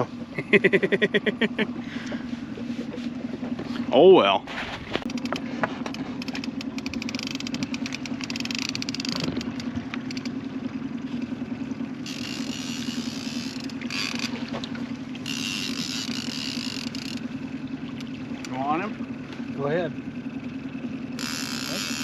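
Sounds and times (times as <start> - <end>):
boat motor humming: 0.0 - 22.0.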